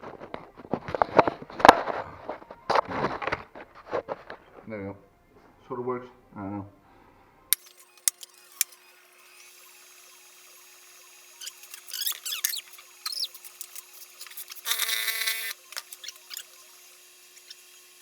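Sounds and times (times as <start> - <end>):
welding arc crackling: 7.6 - 18.0.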